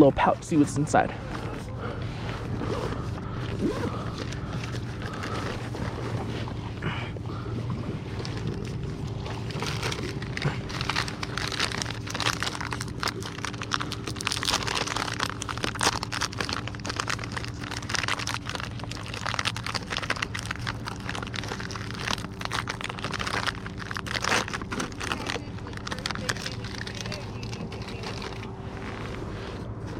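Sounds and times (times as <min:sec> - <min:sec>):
steady low hum: 0:00.0 - 0:29.9
plastic pouch crinkling: 0:03.9 - 0:05.8, 0:08.2 - 0:29.0.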